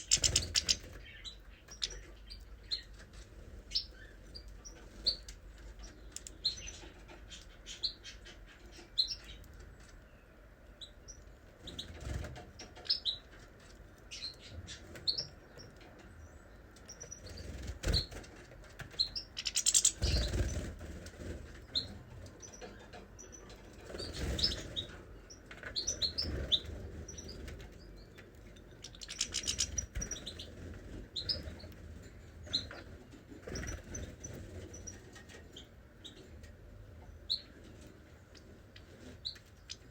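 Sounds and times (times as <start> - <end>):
wings flapping: 0.0 - 1.0, 17.4 - 21.6, 23.8 - 24.8
small birds chirping: 0.0 - 39.9.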